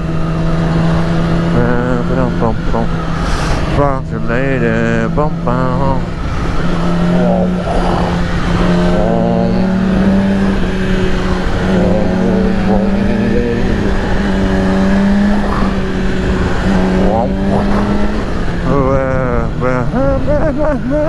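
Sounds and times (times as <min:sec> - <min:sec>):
motorcycle engine at high revs: 0:00.0 - 0:21.0
wind noise on microphone: 0:12.0 - 0:19.5.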